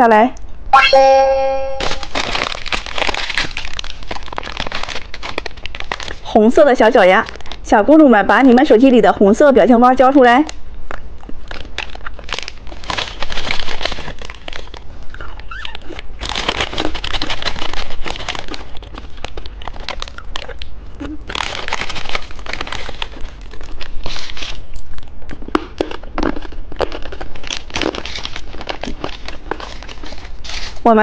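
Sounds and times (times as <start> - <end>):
candy crunching: 1.7 - 8.9, 10.8 - 31.0
plastic wrapper crinkling: 1.8 - 8.8, 10.5 - 31.0.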